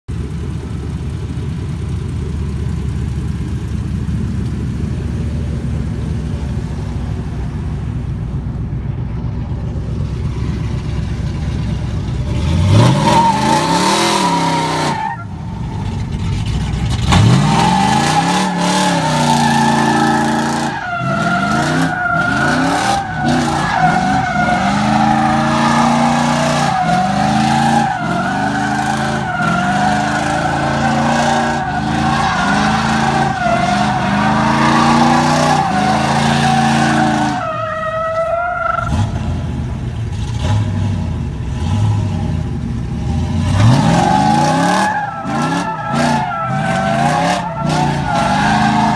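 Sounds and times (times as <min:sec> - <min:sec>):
truck engine revving: 0:03.4 - 0:48.9
tires squealing: 0:10.4 - 0:42.4, 0:43.0 - 0:48.9.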